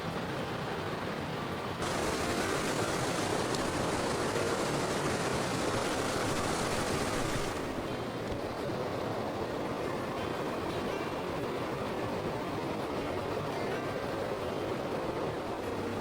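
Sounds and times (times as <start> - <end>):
steady rushing hiss: 1.8 - 10.7.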